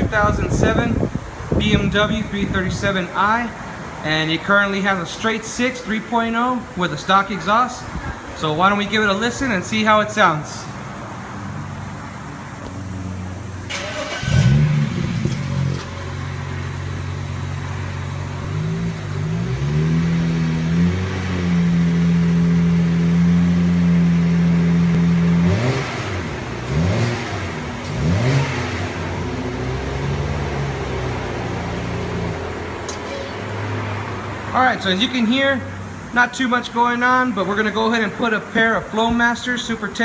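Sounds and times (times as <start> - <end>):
car engine idling and revving: 10.7 - 36.1.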